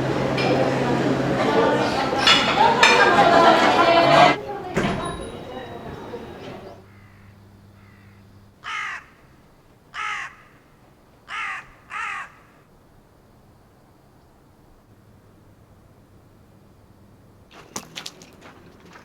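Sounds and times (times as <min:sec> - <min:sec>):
crow cawing: 0:06.9 - 0:12.6.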